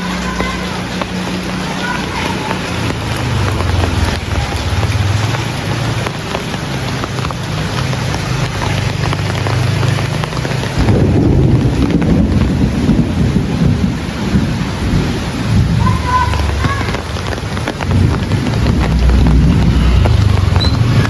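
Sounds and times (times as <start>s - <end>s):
heavy rain: 0.0s - 21.0s
low rumble of thunder: 10.8s - 21.0s.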